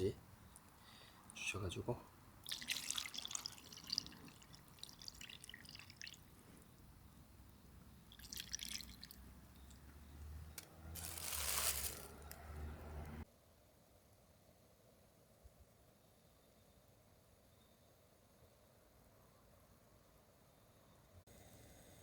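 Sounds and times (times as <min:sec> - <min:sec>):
liquid dripping and splashing: 0:02.4 - 0:06.7, 0:08.0 - 0:09.8
liquid pouring: 0:02.4 - 0:06.8, 0:08.0 - 0:09.8.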